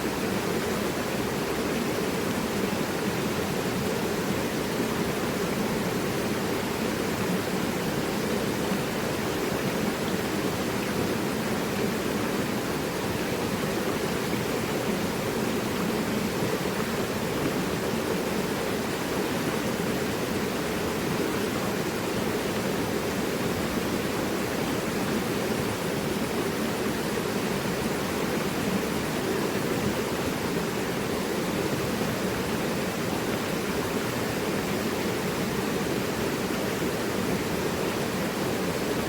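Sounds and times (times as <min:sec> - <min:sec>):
river rushing over rocks: 0:00.0 - 0:39.0.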